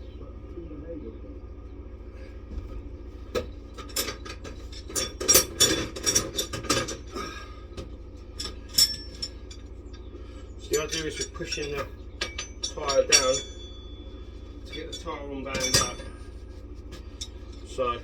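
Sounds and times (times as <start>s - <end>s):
steady low hum: 0.0s - 18.0s
metal parts clinking and rattling: 3.3s - 7.3s, 8.3s - 10.0s, 10.6s - 17.8s.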